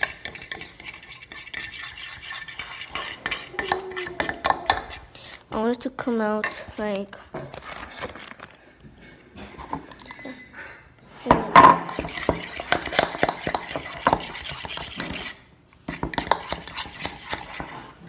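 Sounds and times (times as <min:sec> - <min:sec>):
utensil stirring slime: 0:00.0 - 0:05.7, 0:11.4 - 0:18.0.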